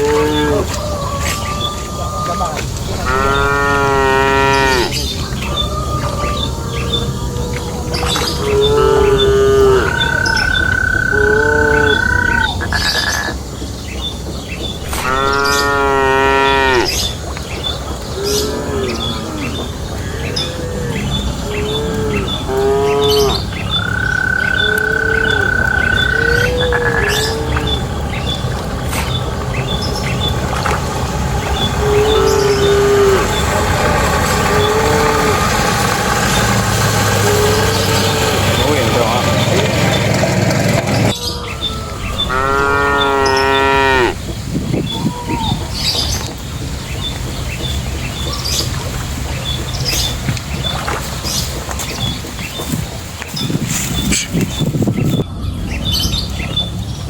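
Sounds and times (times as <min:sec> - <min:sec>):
cattle mooing: 0:00.0 - 0:13.3, 0:14.8 - 0:17.0, 0:18.2 - 0:29.4, 0:31.4 - 0:36.4, 0:37.0 - 0:40.1, 0:42.0 - 0:44.2
bird chirping: 0:00.0 - 0:35.3.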